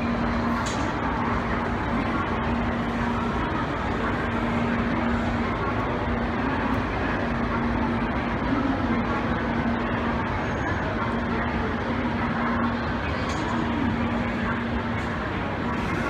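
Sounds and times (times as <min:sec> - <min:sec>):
trains and machinery rumbling: 0:00.0 - 0:16.0.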